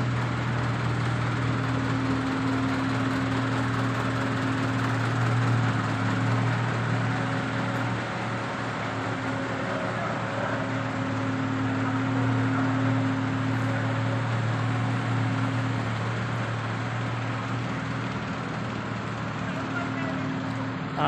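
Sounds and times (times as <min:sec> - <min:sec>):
car engine humming: 0:00.0 - 0:21.0
car moving on road: 0:00.0 - 0:21.0.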